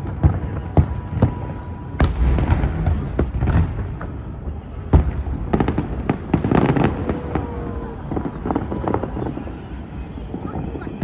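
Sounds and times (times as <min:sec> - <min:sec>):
crackling firework reports: 0:00.0 - 0:11.0
fireworks exploding: 0:00.0 - 0:11.0
loud firework bang: 0:02.0 - 0:07.2.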